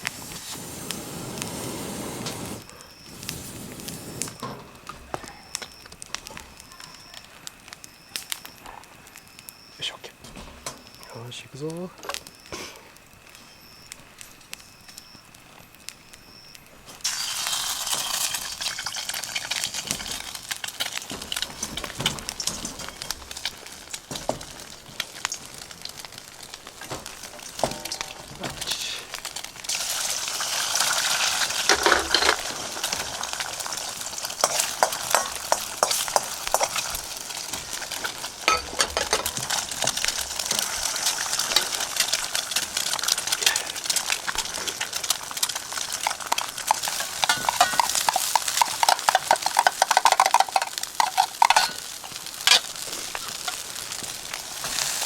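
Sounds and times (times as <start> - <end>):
food sizzling in hot oil: 0.0 - 8.6, 10.6 - 55.0
spatula scraping pan: 34.3 - 37.0, 45.8 - 53.6.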